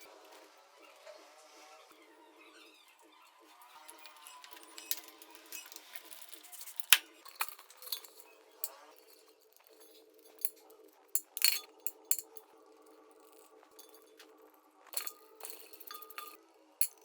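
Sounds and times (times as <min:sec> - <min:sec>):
metal parts clinking: 0:03.6 - 0:14.3, 0:14.9 - 0:17.0.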